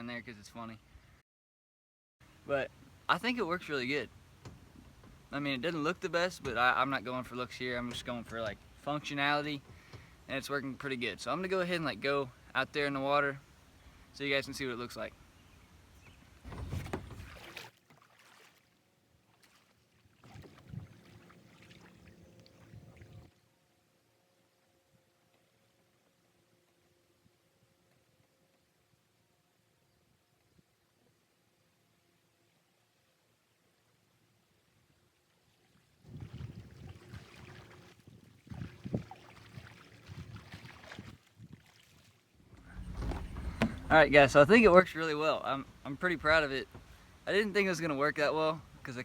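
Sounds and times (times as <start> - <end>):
paddle splashing water: 16.4 - 23.3, 35.5 - 45.1
low rumbles: 42.4 - 46.5.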